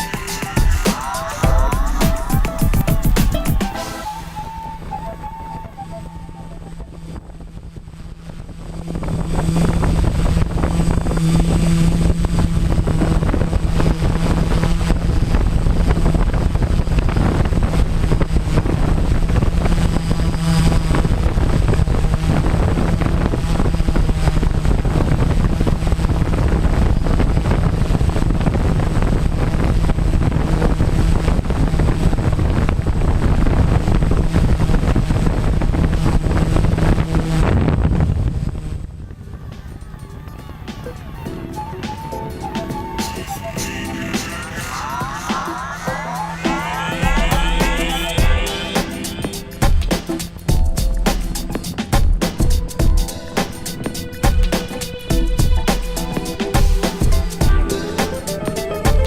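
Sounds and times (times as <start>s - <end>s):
drone propellers humming: 0.0s - 59.0s
wind noise on microphone: 0.0s - 59.0s.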